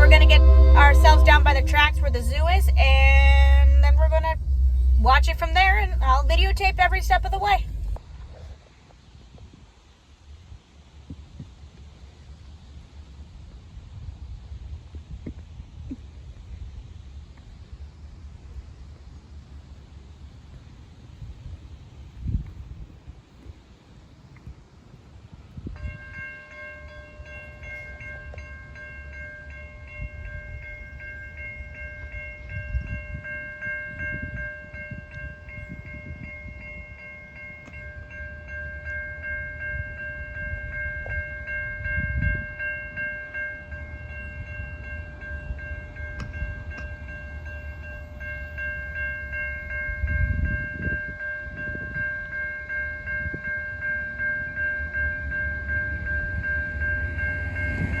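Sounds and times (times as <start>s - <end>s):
high ringing tone: 0.0s - 8.0s, 25.8s - 58.0s
train rumble: 0.0s - 58.0s.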